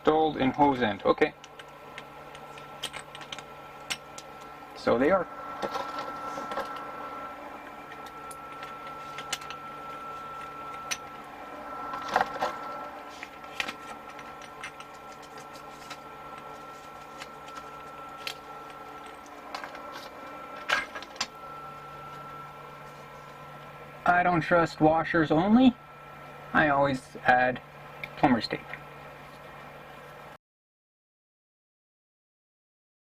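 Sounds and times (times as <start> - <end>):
faint steady hum: 0.0 - 30.4.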